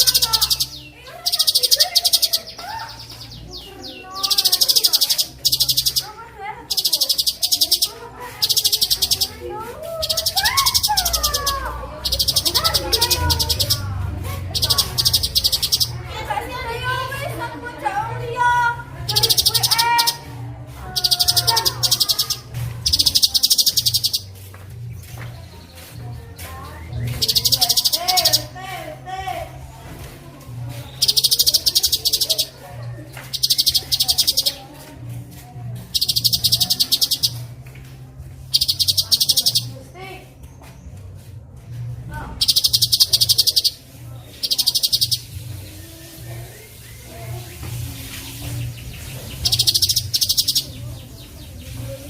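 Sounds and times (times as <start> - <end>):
songbird whistles and trills: 0.0 - 16.0, 19.0 - 28.5, 30.8 - 34.7, 35.8 - 37.5, 38.4 - 39.8, 42.4 - 52.0.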